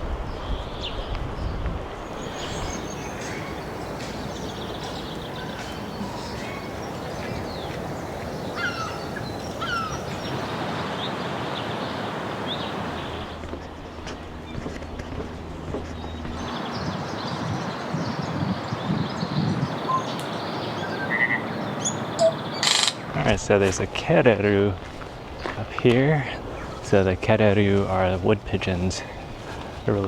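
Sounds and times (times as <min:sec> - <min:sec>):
wild birds chirping: 0:00.2 - 0:15.0, 0:15.6 - 0:24.0, 0:25.1 - 0:30.0
steady rushing noise: 0:01.6 - 0:18.6.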